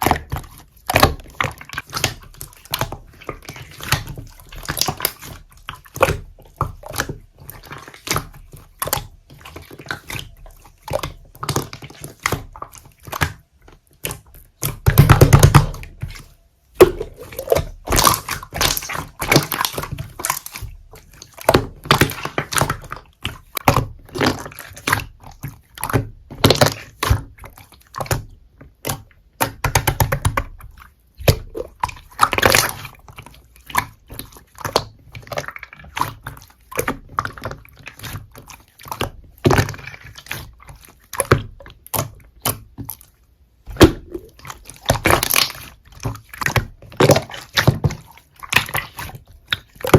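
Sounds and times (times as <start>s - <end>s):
slime squishing: 0.0s - 49.9s
slime clicking and popping: 14.0s - 16.2s, 16.8s - 27.4s, 31.2s - 32.9s, 43.7s - 49.9s.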